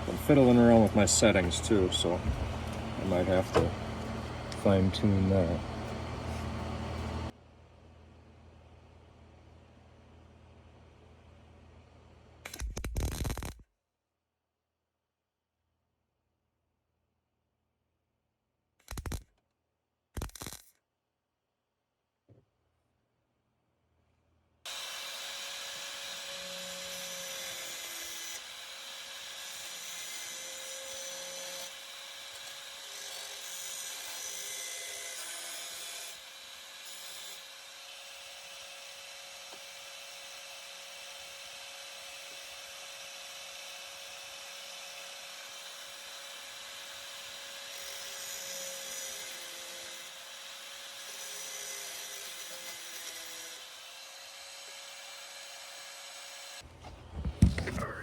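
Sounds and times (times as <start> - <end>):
electric grinder on sheet metal: 0.0 - 7.3, 24.7 - 56.6.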